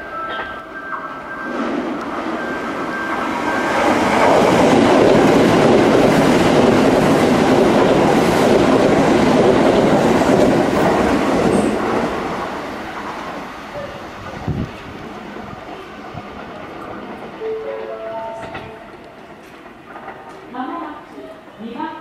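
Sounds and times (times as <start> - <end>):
train wheels on rails: 0.0 - 22.0.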